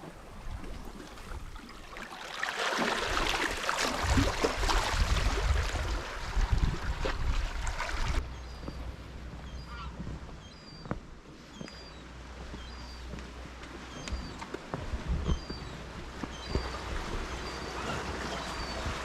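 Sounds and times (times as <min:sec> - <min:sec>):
sea water washing: 0:00.0 - 0:08.2, 0:15.7 - 0:19.0
wind on microphone: 0:03.0 - 0:08.8, 0:13.9 - 0:19.0.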